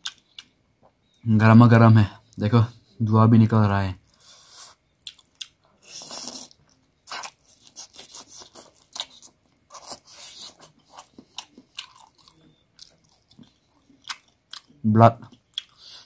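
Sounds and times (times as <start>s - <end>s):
chewing: 4.0s - 16.0s
sucking on food: 5.8s - 8.6s.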